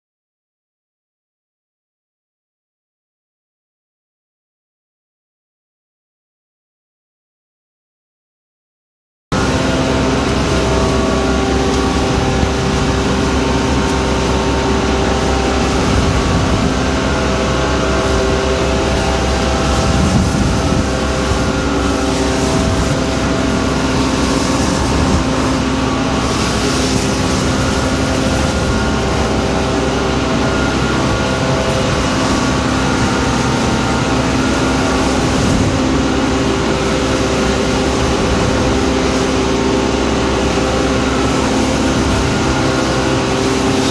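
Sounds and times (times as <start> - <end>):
vacuum truck running: 9.4 - 43.9.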